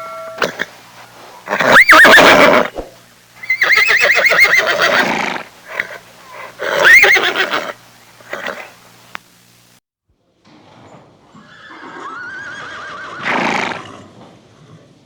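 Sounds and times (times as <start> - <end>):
horse whinnying: 1.5 - 8.8, 11.4 - 14.1.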